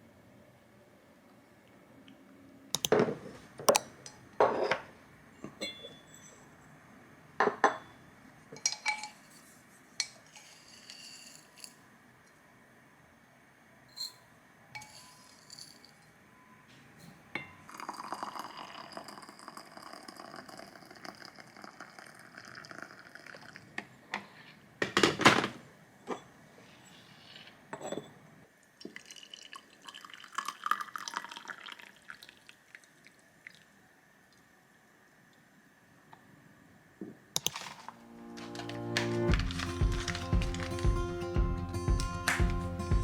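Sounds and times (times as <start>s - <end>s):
glass and dishes clinking: 5.4s - 6.5s, 7.4s - 8.0s, 8.6s - 11.6s, 14.8s - 16.0s, 17.0s - 19.1s, 27.7s - 28.2s
liquid being poured: 17.7s - 23.7s, 28.9s - 33.7s.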